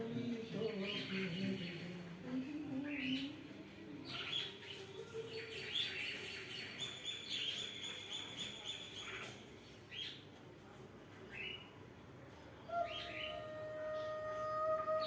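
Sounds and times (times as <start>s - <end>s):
small birds chirping: 0.0s - 3.4s, 4.0s - 10.4s, 11.2s - 11.8s.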